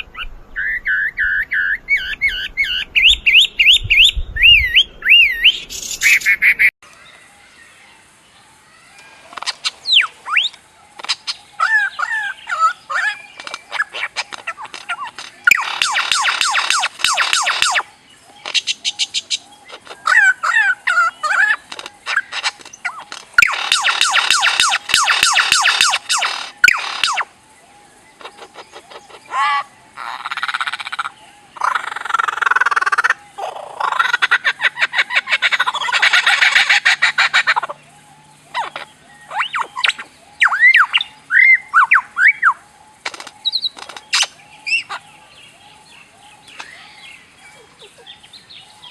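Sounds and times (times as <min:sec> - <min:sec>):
songbirds singing: 0:00.0 - 0:48.9
songbird whistled notes: 0:00.1 - 0:06.7, 0:38.6 - 0:42.6
bird buzzy trill: 0:09.4 - 0:27.4
bird clicks: 0:13.4 - 0:17.8, 0:21.7 - 0:27.2, 0:43.0 - 0:44.4.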